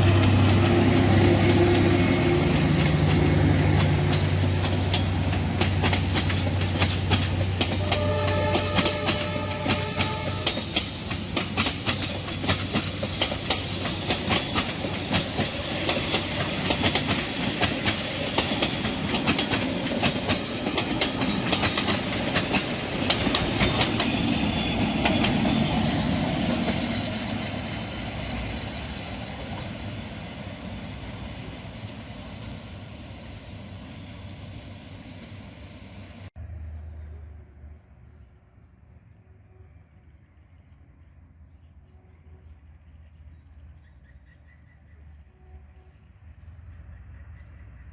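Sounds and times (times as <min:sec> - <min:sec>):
train wheels clacking over rail joints: 0:00.0 - 0:29.8.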